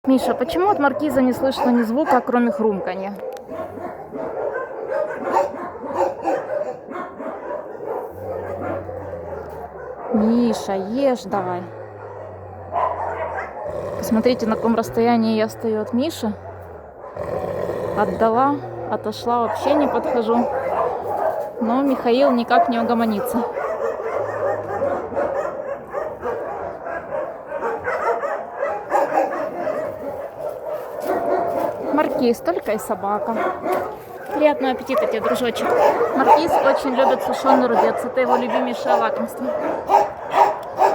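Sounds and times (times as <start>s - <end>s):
dog yapping: 0.6s - 10.5s, 12.0s - 13.8s, 19.4s - 32.0s, 33.2s - 40.9s.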